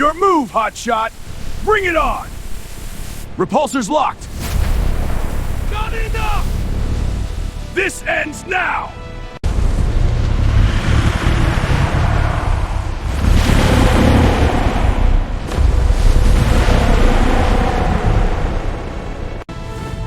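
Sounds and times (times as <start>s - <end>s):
loud rushing rumbling noise: 9.4s - 19.5s.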